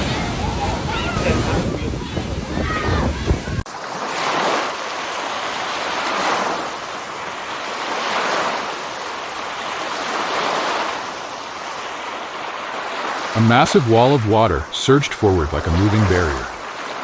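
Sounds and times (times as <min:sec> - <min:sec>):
ocean surf breaking: 0:03.7 - 0:17.0.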